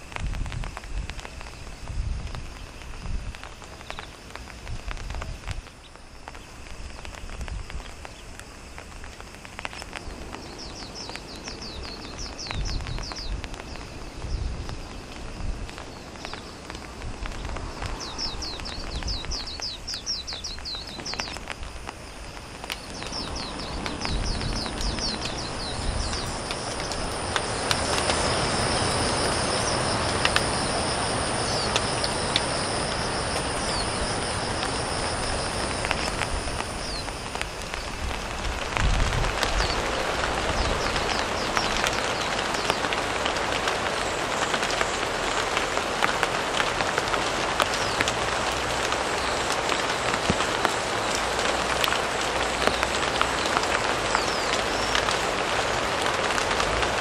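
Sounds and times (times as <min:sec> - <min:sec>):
steady rushing noise: 0:00.0 - 0:57.0
high-pitched whine: 0:09.6 - 0:55.1
bird singing falling notes: 0:15.8 - 0:38.0.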